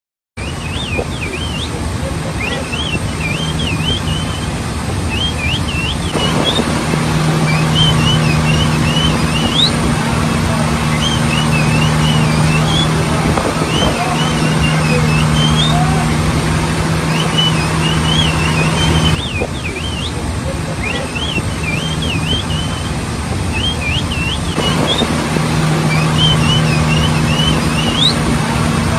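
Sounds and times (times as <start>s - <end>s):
dolphins whistling: 0.4s - 28.9s
low engine hum: 0.4s - 28.9s.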